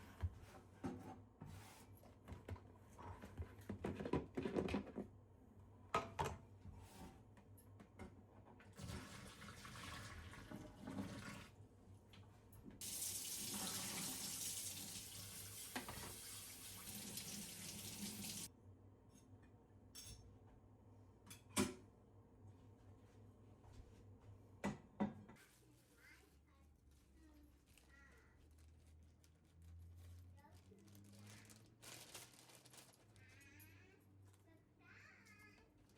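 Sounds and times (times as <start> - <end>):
tap water running into sink: 8.8 - 11.6, 12.8 - 18.5.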